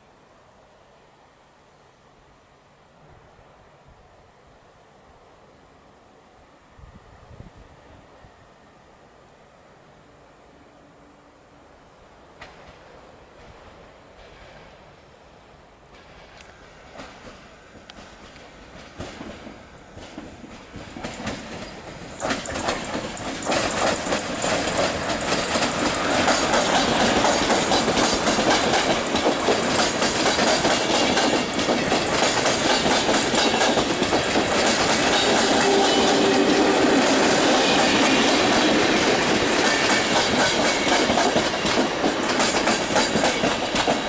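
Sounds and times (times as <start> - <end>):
passenger train passing: 0.0 - 44.0
train wheels clattering over rails: 12.4 - 14.8, 15.9 - 44.0.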